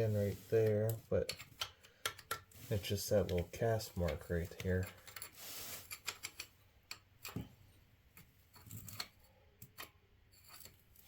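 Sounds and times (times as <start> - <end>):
tools and metal parts clicking: 4.8 - 5.4.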